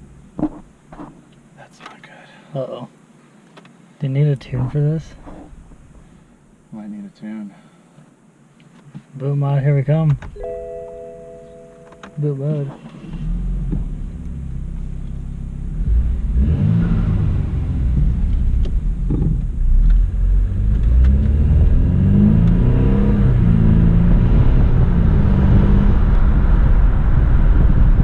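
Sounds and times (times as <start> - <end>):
car engine accelerating: 12.9 - 28.0.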